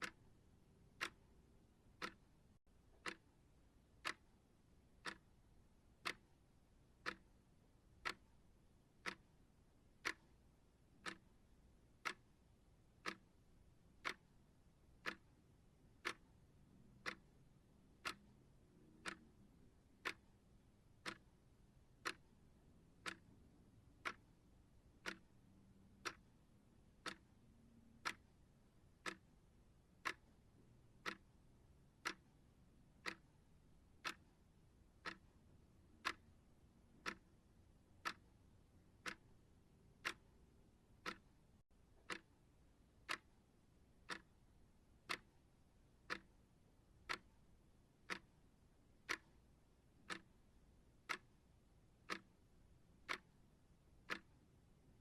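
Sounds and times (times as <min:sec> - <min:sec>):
timer ticking: 0:00.0 - 0:55.0.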